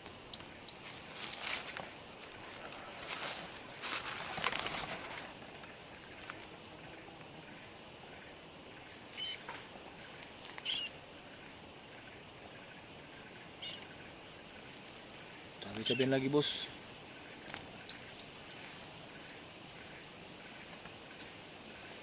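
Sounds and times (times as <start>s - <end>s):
forest insects droning: 0.0s - 22.0s
rustling: 0.8s - 5.4s
sharp high bird chirps: 9.2s - 9.5s, 10.6s - 10.9s, 13.6s - 14.0s, 15.7s - 16.7s, 17.8s - 19.4s.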